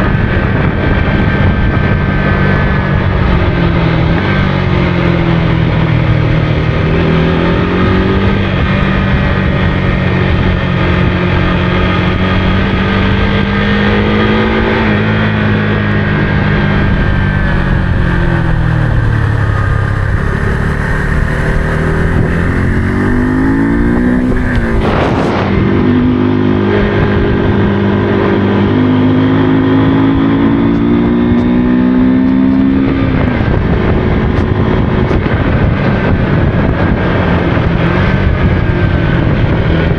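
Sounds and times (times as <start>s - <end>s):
motorcycle engine revving: 0.0s - 39.9s
brief rush of noise: 24.3s - 26.0s.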